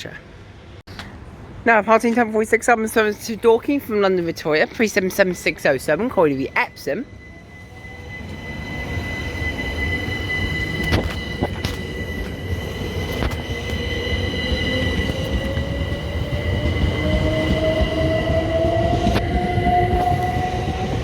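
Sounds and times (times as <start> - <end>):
train traction whine: 5.2 - 21.0.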